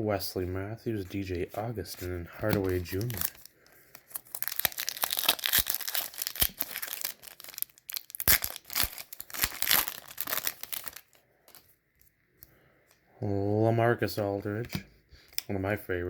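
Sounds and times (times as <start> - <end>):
plastic wrapper tearing and crinkling: 2.4 - 11.7.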